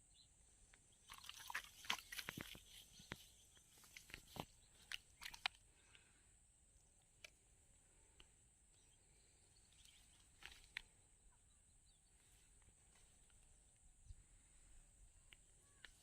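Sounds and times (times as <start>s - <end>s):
faint clicks: 9.8s - 10.9s.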